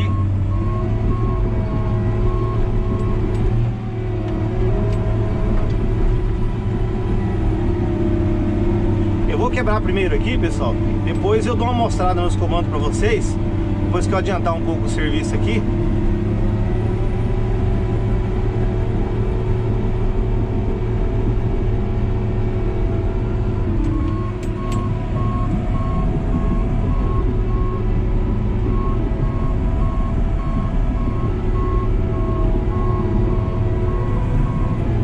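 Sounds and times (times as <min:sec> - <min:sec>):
reversing alarm beeping: 0:00.0 - 0:03.4, 0:23.7 - 0:35.0
diesel engine running: 0:00.0 - 0:35.0.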